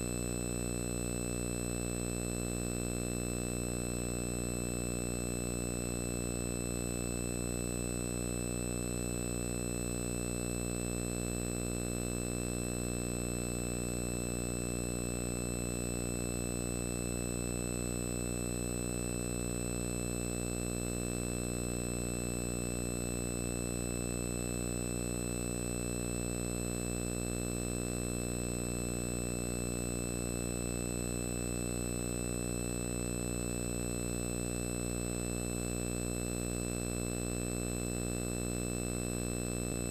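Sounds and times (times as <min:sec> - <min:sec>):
electrical buzzing hum: 0:20.1 - 0:39.9.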